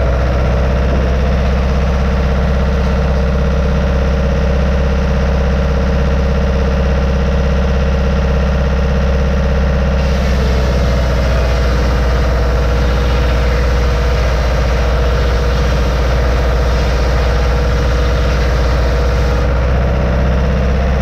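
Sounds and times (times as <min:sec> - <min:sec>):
sawmill droning: 0:00.0 - 0:21.0
saw blade hiss: 0:10.0 - 0:19.5.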